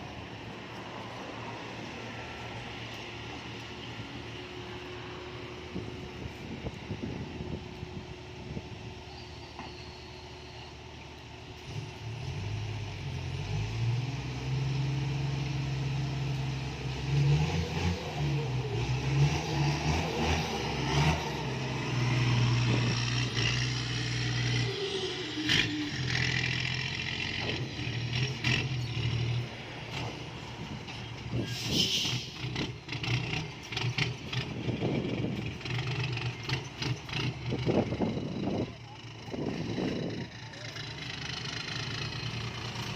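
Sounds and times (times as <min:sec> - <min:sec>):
diesel truck engine revving: 0:10.6 - 0:42.9
air hiss: 0:31.4 - 0:32.4.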